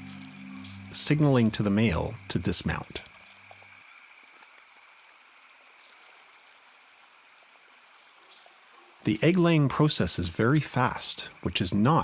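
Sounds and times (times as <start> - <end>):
steady high-pitched tone: 0.0 - 3.1
low sustained note: 0.0 - 3.4
soft water-like hiss: 2.0 - 9.0.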